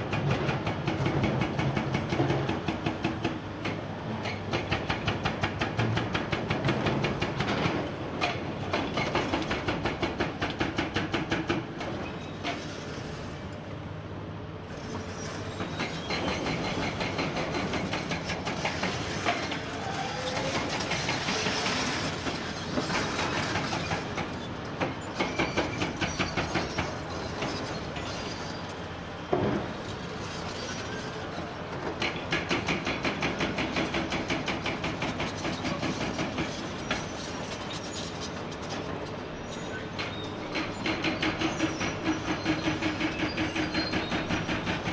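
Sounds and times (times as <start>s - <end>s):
hydraulic breaker hammering rock: 15.7s - 27.6s, 32.0s - 36.6s, 40.0s - 44.9s.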